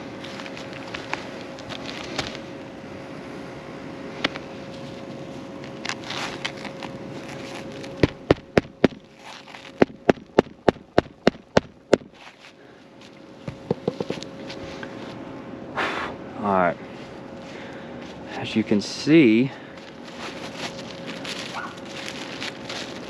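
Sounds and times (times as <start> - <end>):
hammer striking roofing nails: 9.8 - 12.1.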